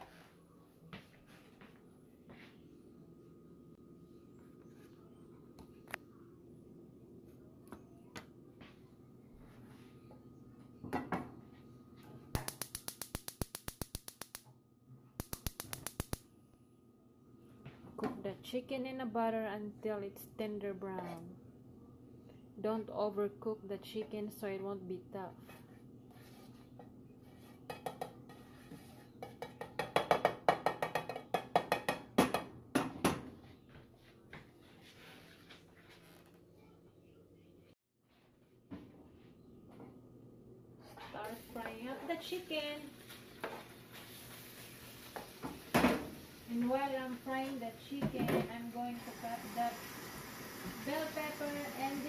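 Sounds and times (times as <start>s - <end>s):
gas stove igniter clicking: 12.4s - 14.4s, 15.2s - 16.2s.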